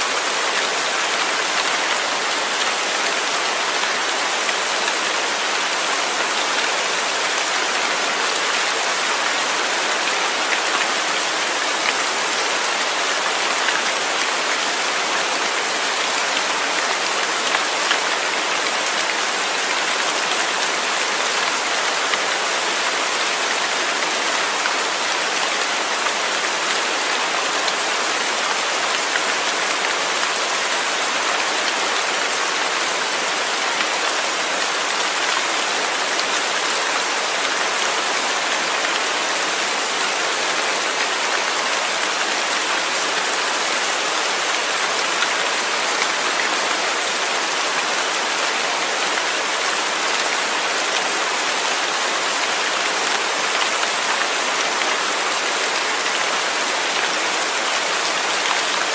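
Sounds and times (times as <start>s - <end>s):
rain pattering on a surface: 0.1s - 58.9s.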